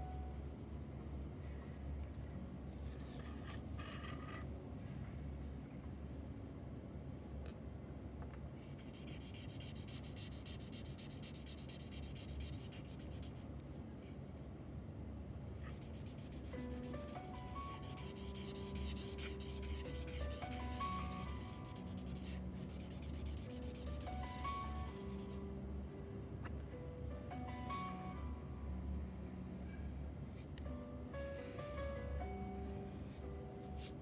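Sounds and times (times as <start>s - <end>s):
pencil shading on paper: 8.6s - 13.4s, 15.5s - 25.4s.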